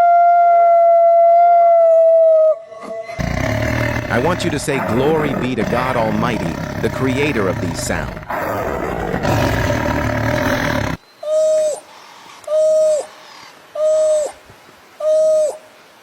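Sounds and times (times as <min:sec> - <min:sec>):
rough roar-like animal call: 0:03.0 - 0:11.0.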